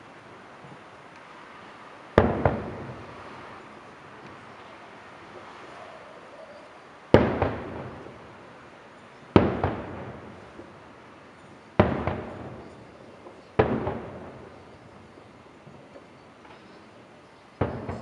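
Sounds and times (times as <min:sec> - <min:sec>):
firework shells bursting: 0:02.2 - 0:04.6, 0:09.3 - 0:10.8, 0:11.8 - 0:16.7, 0:17.6 - 0:18.0.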